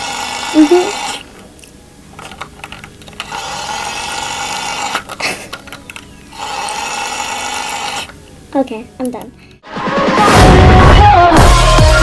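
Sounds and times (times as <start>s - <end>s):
small motor whining: 0.0s - 1.4s, 2.2s - 8.2s.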